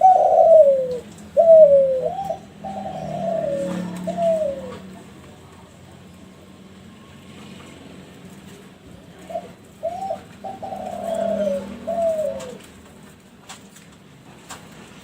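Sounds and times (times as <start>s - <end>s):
dove cooing: 0.0s - 5.0s, 9.1s - 12.8s.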